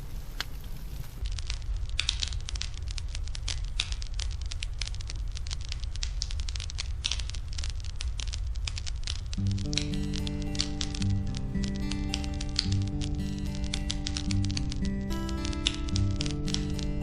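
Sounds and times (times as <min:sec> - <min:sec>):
fire crackling: 0:00.0 - 0:17.0.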